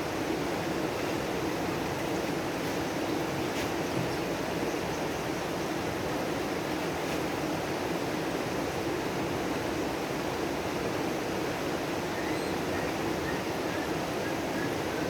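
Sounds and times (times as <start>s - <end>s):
faint bird chirp: 12.1s - 15.0s.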